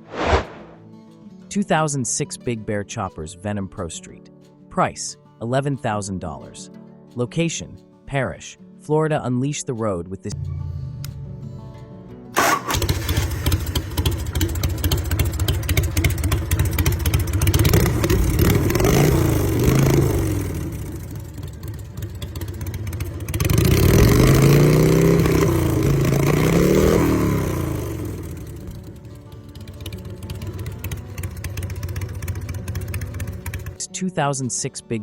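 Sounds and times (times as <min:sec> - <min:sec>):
motorcycle engine idling and revving: 0:12.4 - 0:33.8.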